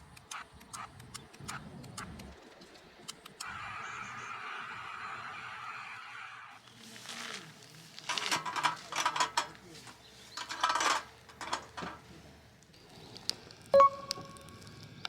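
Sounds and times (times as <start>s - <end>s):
charcoal lumps clinking: 6.6s - 15.0s.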